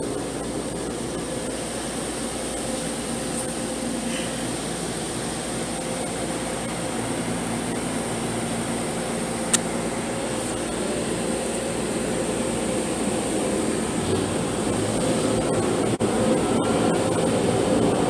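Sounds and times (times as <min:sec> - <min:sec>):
car wash machinery running: 0:00.0 - 0:18.0
sharp click: 0:09.5 - 0:09.7.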